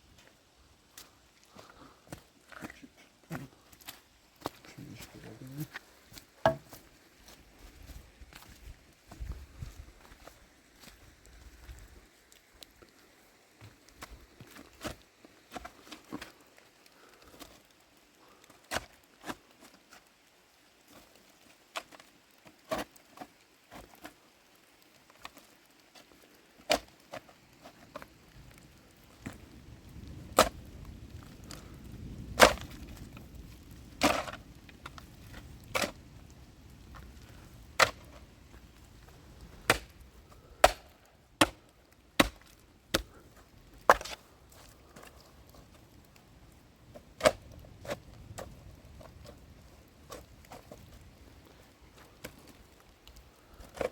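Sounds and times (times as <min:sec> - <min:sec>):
sharp knocks: 0:06.4 - 0:06.7.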